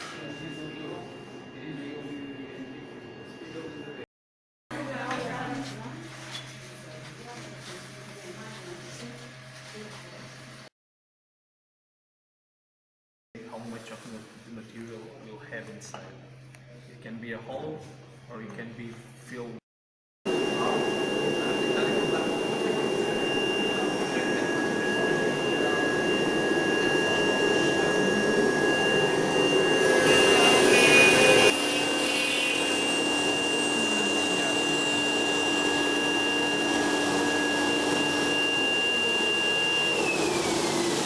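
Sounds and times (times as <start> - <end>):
high steady whines: 0.0 - 4.0, 20.3 - 41.0
machine motors humming: 20.3 - 41.0.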